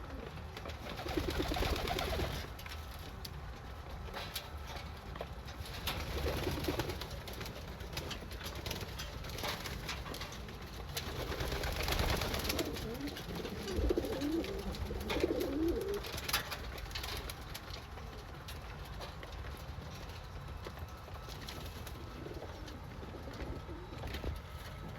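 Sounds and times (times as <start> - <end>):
pigeons cooing: 0.0 - 2.5, 11.2 - 16.3, 21.9 - 24.5.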